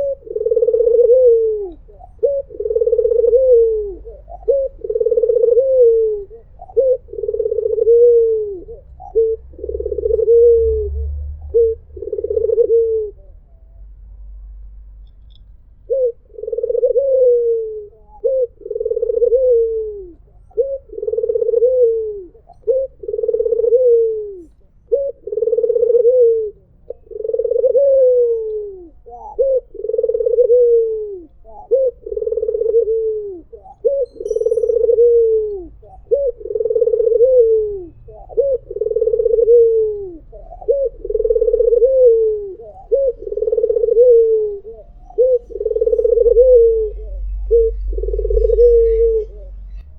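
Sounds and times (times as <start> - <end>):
dove cooing: 0.0 - 13.8, 15.8 - 49.9.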